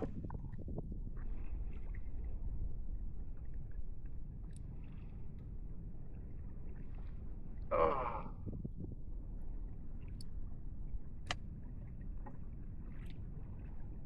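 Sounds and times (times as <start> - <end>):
water and wind rumble: 0.0 - 14.0
faint light clicks: 11.2 - 11.5.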